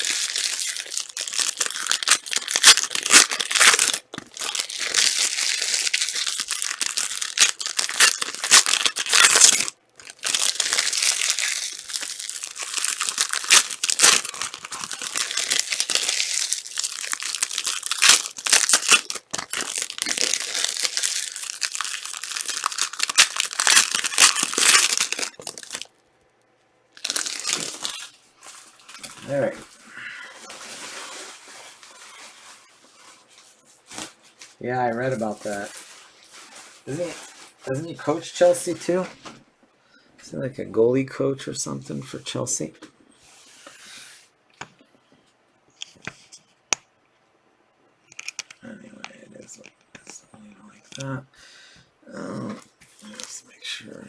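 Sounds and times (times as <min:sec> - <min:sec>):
foil wrappers tearing and crinkling: 0:00.0 - 0:25.9, 0:27.0 - 0:29.5, 0:30.5 - 0:32.6, 0:48.1 - 0:48.6, 0:52.9 - 0:53.4.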